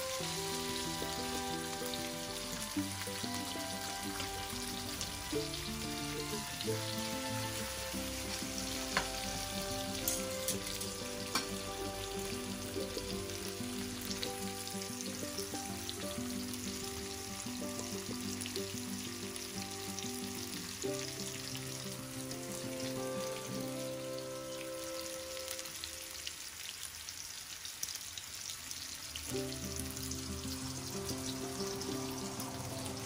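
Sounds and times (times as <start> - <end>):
background music: 0.0 - 26.1, 29.3 - 33.0
fish sizzling in frying pan: 0.0 - 33.0
metal tongs clicking on pan: 10.1 - 11.5.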